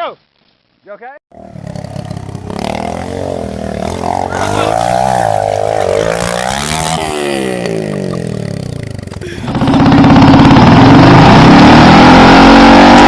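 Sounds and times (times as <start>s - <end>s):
small motorcycle engine revving: 1.4s - 13.0s.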